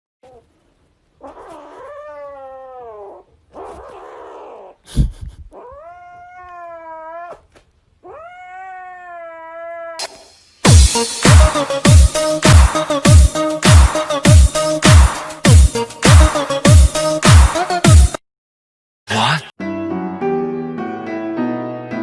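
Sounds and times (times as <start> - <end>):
cat yowling: 1.2 - 4.8, 5.5 - 10.1
music with a heavy beat: 10.0 - 18.2.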